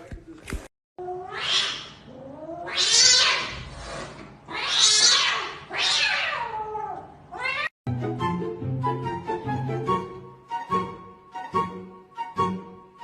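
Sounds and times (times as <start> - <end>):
cat yowling: 1.0 - 3.6, 4.5 - 7.7.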